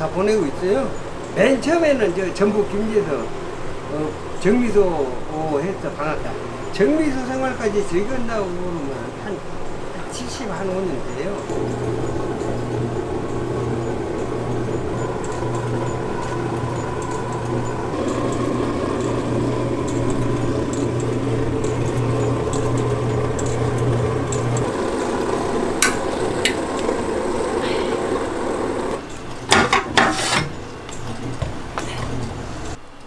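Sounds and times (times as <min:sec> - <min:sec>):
loud metallic clanks: 0:11.2 - 0:32.8.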